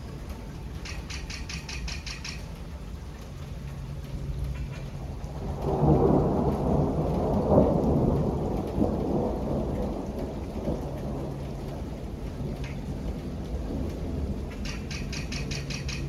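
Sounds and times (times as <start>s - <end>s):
steady rain: 0.0s - 16.0s
thunder rolling: 5.0s - 14.6s.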